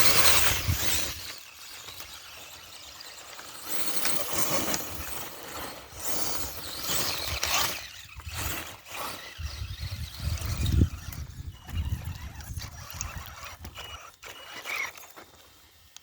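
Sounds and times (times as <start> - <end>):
rc truck motor whirring: 0.0 - 16.0
wind on microphone: 9.4 - 14.0.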